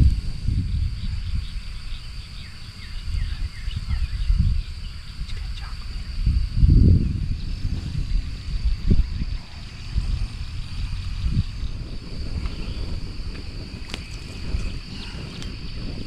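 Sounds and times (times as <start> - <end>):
insect drone: 0.0 - 16.0
wind rumbling on microphone: 0.0 - 16.0
small bird chirping: 0.6 - 6.3.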